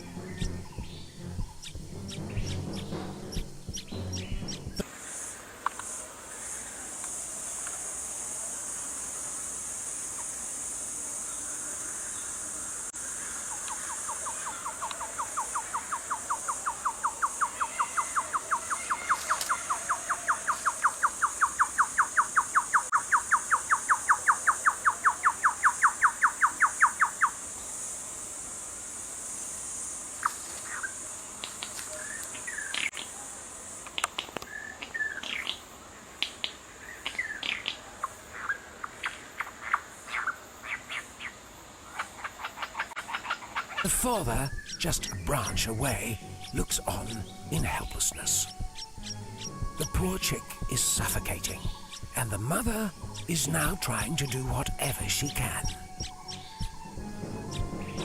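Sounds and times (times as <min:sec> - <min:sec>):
faint chirps: 0:00.0 - 0:27.9, 0:30.1 - 0:58.0
insects buzzing: 0:00.0 - 0:58.0
rapid pulsed call: 0:42.5 - 0:58.0.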